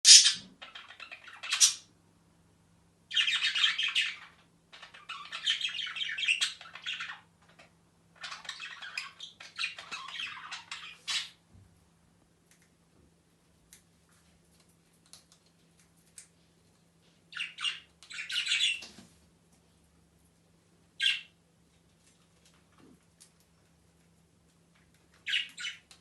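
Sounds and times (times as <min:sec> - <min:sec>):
lovebirds chattering: 0:00.0 - 0:01.9, 0:03.1 - 0:11.4, 0:17.3 - 0:18.9, 0:21.0 - 0:21.4, 0:25.2 - 0:26.0.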